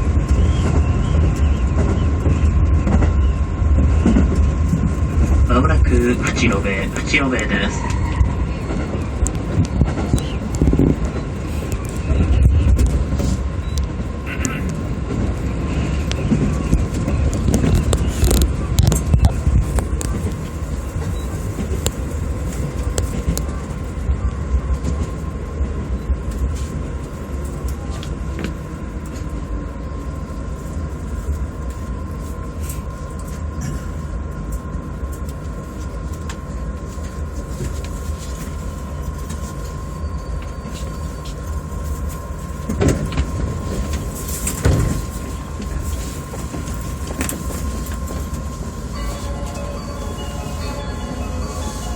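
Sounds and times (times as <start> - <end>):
electric train hum and whine: 0.0 - 51.9
train knocks: 42.6 - 51.9.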